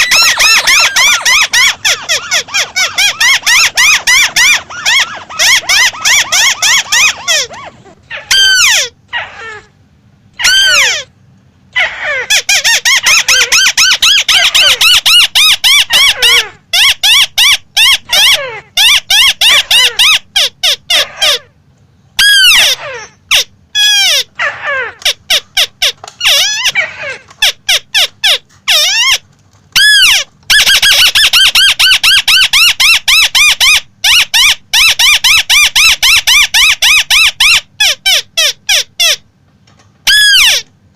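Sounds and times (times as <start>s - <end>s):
bird calling squeaky notes: 0.0s - 8.9s.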